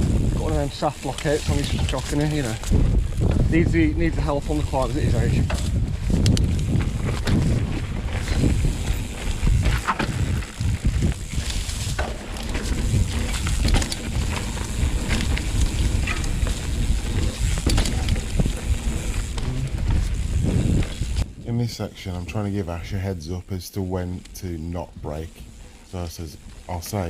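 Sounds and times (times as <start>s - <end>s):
bike rattling over bumps: 0.0s - 21.4s, 23.9s - 27.0s
wind buffeting microphone: 0.0s - 21.5s
tyres rumbling over rough ground: 0.0s - 27.0s.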